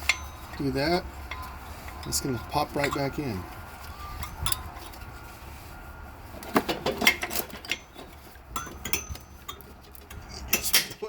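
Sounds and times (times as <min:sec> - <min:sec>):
metal clinks of brake pad: 0:00.0 - 0:03.3, 0:06.6 - 0:11.0.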